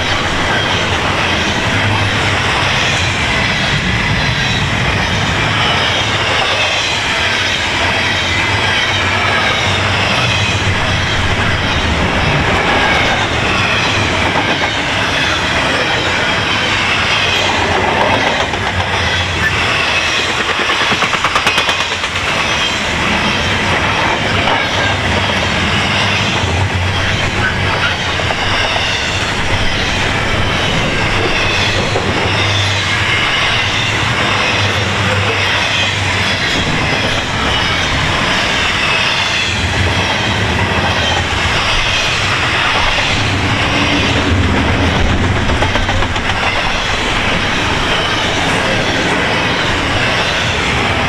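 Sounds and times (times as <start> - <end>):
train wheels rumbling on rail: 0.0 - 51.0
rapid clicking of wheels: 17.2 - 22.7.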